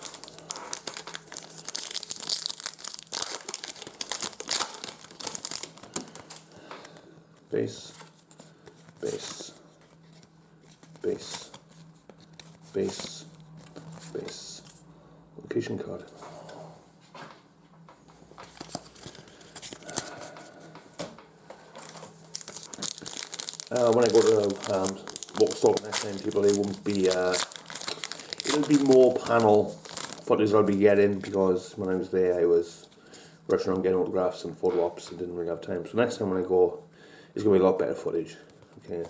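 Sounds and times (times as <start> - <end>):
wrapper crinkling and tearing: 0.0 - 6.6, 21.8 - 31.4.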